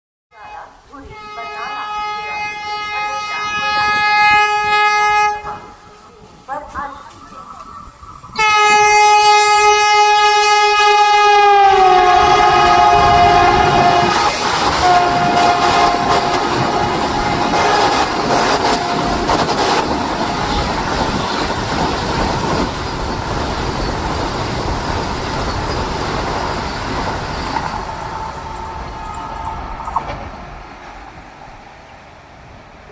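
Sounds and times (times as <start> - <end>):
loud train horn: 0.4 - 6.0, 8.4 - 21.6
passing train rushing: 0.5 - 32.9.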